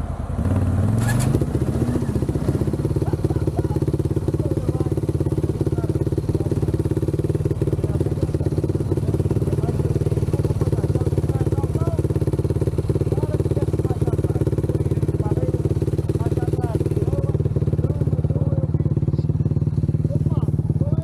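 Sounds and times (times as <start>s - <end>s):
atv engine revving and running: 0.0s - 21.0s.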